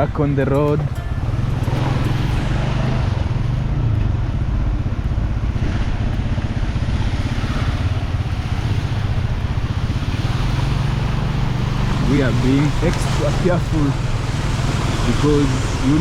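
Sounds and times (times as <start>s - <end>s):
low engine drone: 0.0s - 16.0s
tyres hissing on water: 10.7s - 16.0s.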